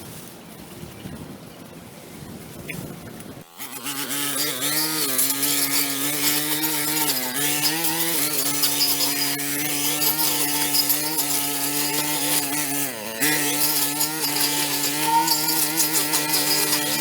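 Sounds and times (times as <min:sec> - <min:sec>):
engine-driven power tool running: 0:03.4 - 0:17.0.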